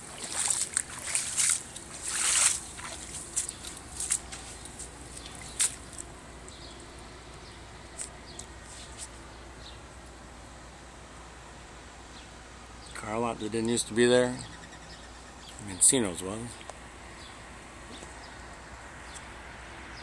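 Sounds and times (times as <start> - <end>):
sharp splashes: 0.0 - 6.2
water trickling: 0.0 - 8.8.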